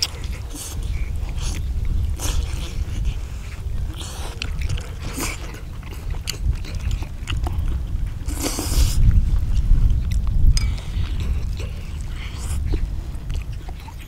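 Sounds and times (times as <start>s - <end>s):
people chewing and slurping: 0.0s - 14.0s
steady low rumble: 0.0s - 14.0s
hissing slurp: 8.2s - 9.1s.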